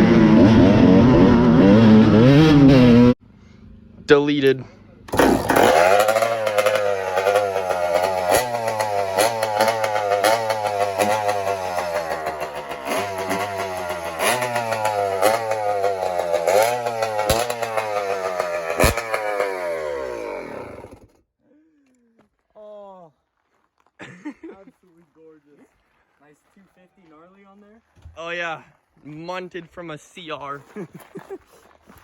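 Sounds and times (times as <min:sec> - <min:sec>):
dirt bike engine revving: 0:00.0 - 0:03.2, 0:05.1 - 0:21.1.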